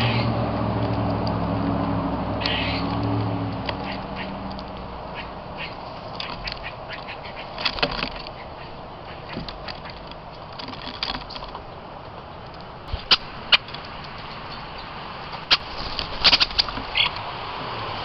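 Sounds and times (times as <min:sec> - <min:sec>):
steady background noise: 0:00.0 - 0:18.0
bird calls and clicks: 0:02.4 - 0:17.3.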